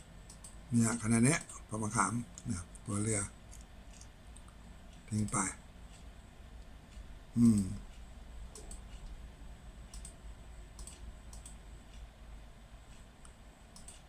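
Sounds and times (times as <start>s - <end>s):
low steady hum: 0.0s - 14.0s
computer mouse clicking: 0.2s - 0.6s, 8.5s - 9.2s, 9.9s - 12.1s, 12.9s - 14.0s.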